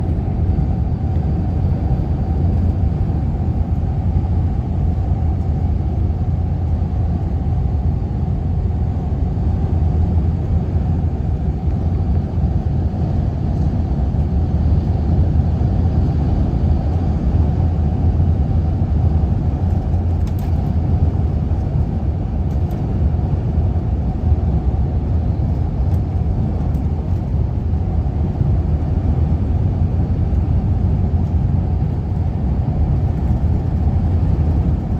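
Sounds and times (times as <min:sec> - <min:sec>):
wind buffeting microphone: 0:09.0 - 0:34.9.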